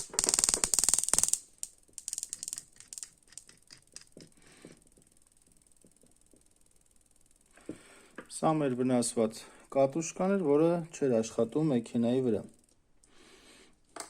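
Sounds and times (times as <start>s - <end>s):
spark ticks: 0.0s - 8.4s.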